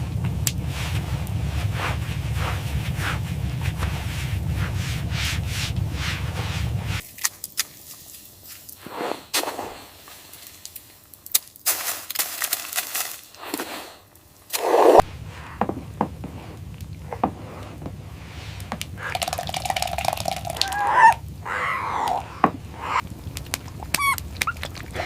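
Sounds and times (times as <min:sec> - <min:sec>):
wind rumble: 0:00.0 - 0:07.0, 0:15.0 - 0:25.0
sharp cracks and knocks: 0:22.0 - 0:25.0.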